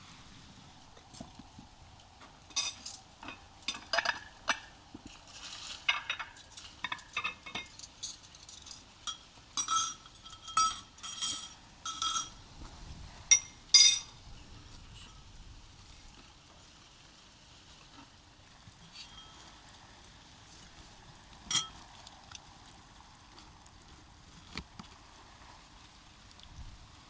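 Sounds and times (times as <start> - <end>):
cutlery clinking against dishes: 2.5 - 4.7, 5.9 - 12.4, 13.3 - 14.2, 18.9 - 19.5, 21.5 - 21.8.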